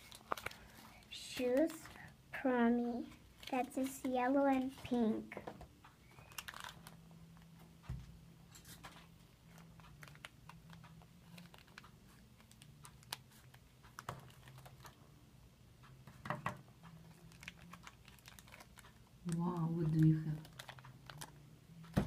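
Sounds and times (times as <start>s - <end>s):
plastic packaging crinkling: 0.0s - 2.1s, 6.1s - 7.0s, 9.5s - 15.0s, 17.0s - 21.4s.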